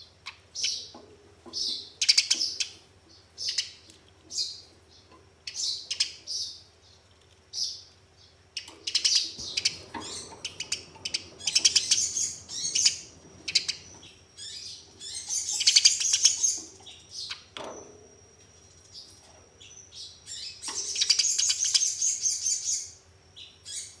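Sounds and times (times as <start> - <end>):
sparrow chirping and chattering: 0.3 - 6.9, 8.6 - 17.5, 18.7 - 24.0.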